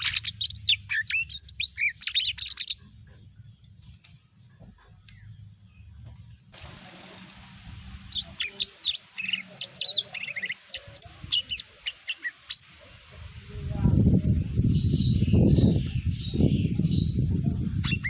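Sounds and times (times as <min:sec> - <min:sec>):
bird chirping and whistling: 0:00.0 - 0:02.8, 0:08.1 - 0:12.7
light hiss: 0:06.5 - 0:13.6.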